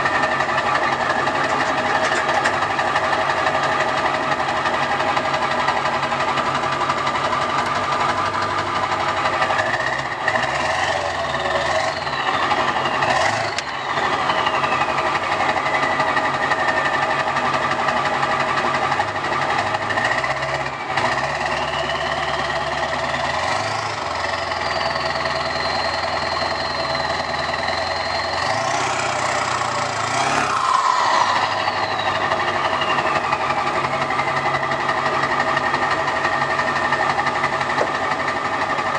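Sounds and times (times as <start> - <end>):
diesel engine clattering and revving: 0.0 - 38.9
turbo whistle: 11.0 - 16.8, 24.4 - 34.3.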